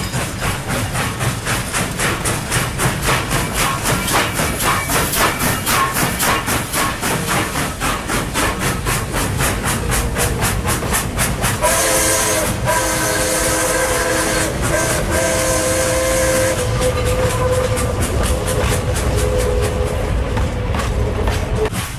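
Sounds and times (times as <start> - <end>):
running train rhythmic beat: 0.0 - 21.9
train whistle chord: 11.6 - 17.9.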